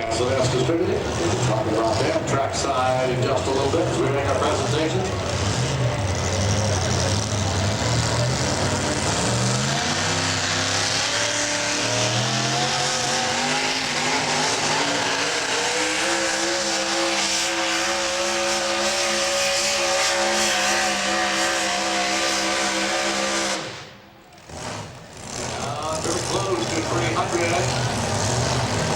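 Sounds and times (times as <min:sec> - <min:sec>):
truck engine at high revs: 0:00.0 - 0:28.9.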